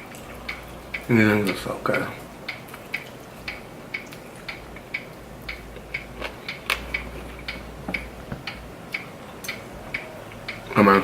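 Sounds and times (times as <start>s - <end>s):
clock ticking: 0.0s - 11.0s.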